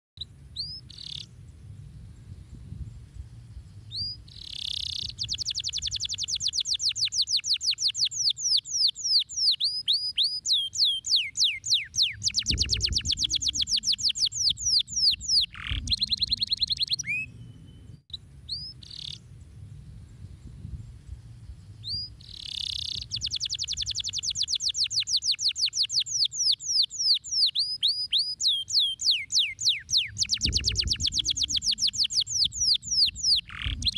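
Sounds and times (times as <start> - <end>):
faint low rumble: 0.2 - 6.6, 11.7 - 24.5
canary singing trills: 0.5 - 1.4, 3.6 - 19.3, 21.6 - 33.9.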